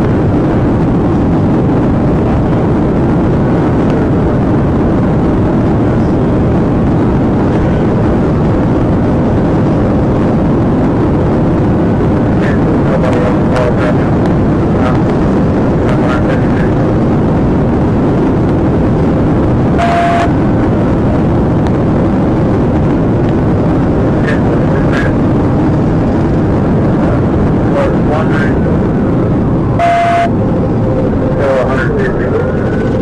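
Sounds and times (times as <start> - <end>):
car cabin road and engine noise: 0.0 - 33.0
short beep: 29.8 - 30.3.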